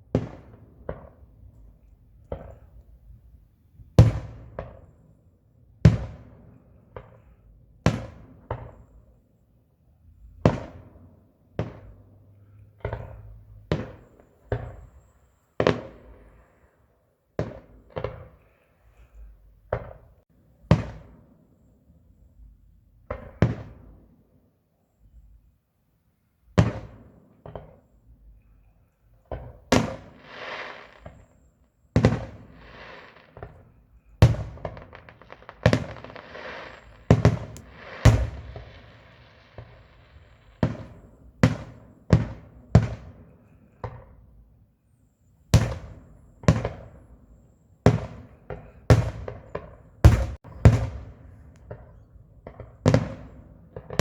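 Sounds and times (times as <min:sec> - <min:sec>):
fireworks bangs: 0:29.4 - 0:43.1, 0:47.9 - 0:54.0
fireworks hissing crackle: 0:29.9 - 0:41.2.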